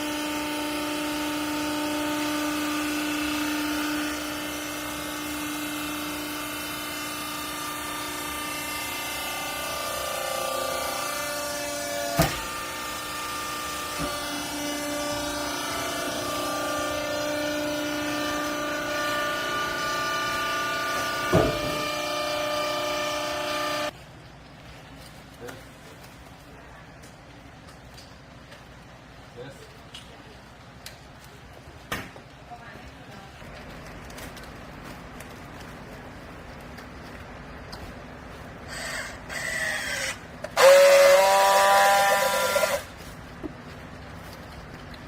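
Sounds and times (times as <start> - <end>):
baler motor and pump whine: 0.0 - 24.0, 34.0 - 45.0.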